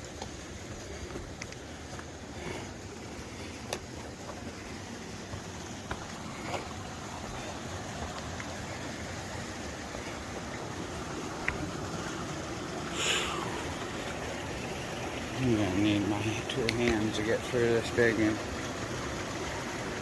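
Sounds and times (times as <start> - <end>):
stream rushing: 0.0 - 20.0.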